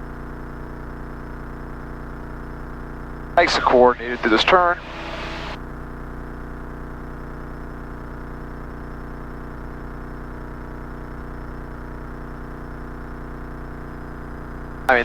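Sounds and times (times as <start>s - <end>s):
propeller plane engine drone: 3.4s - 5.6s.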